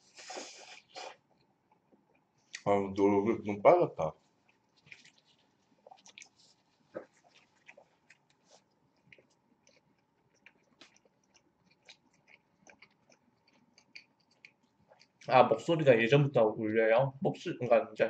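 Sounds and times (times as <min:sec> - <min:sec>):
chewing with wet clicks: 0:00.7 - 0:02.7, 0:04.4 - 0:15.3.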